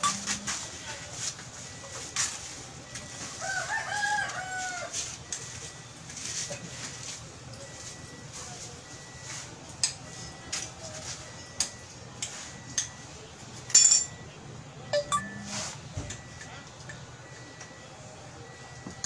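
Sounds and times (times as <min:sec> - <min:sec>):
sharp metallic clinks and knocks: 0:13.7 - 0:14.2.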